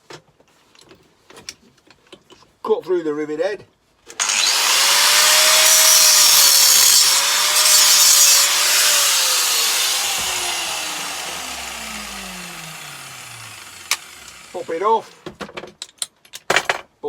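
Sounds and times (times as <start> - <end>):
angle grinder cutting metal: 4.2 - 15.2
grinder disc spinning down: 4.2 - 15.2.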